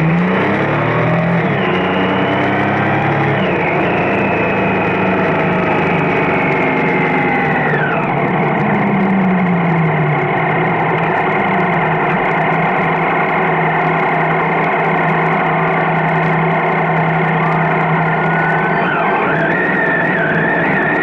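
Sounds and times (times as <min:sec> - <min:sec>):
motorcycle engine running: 0:00.0 - 0:21.0
road and wind noise: 0:00.0 - 0:21.0.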